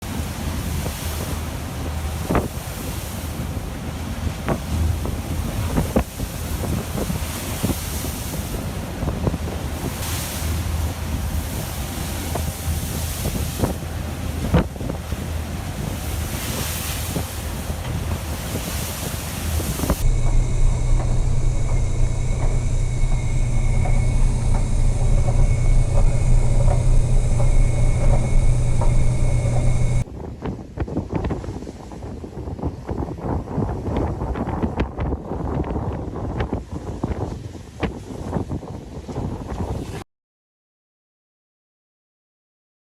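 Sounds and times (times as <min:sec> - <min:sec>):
sea: 0:00.0 - 0:40.0
wind: 0:00.0 - 0:40.0
steady low hum: 0:09.6 - 0:16.4, 0:19.2 - 0:30.1
faint high whine: 0:20.0 - 0:30.1.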